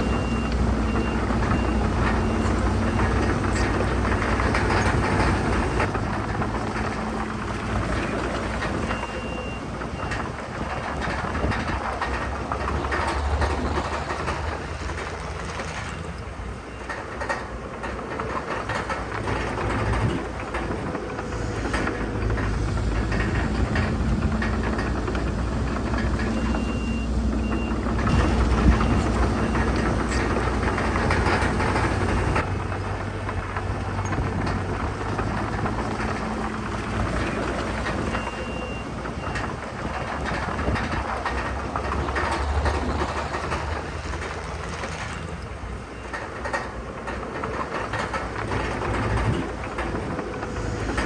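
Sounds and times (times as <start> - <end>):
reversing alarm beeping: 0.0 - 5.9, 23.1 - 32.4, 37.9 - 39.6
bulldozer diesel engine: 0.0 - 51.0
steel tracks clanking: 0.0 - 51.0.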